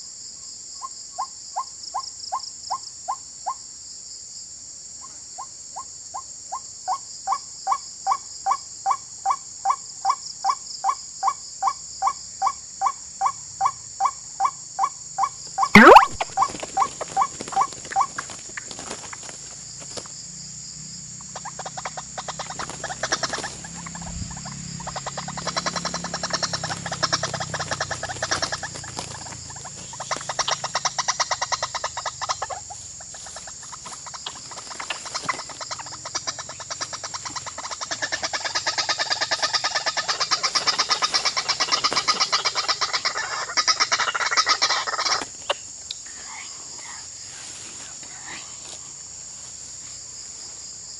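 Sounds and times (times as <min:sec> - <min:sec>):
insects chirring: 0:00.0 - 0:50.9
waterhen calling: 0:15.7 - 0:18.2, 0:21.3 - 0:45.3.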